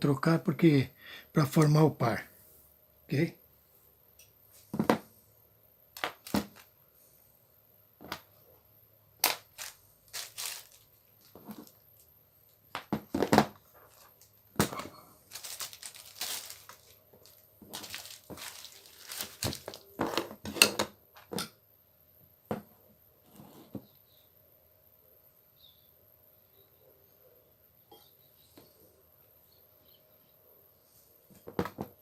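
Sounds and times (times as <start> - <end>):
crinkling: 6.0 - 6.7, 9.2 - 20.7.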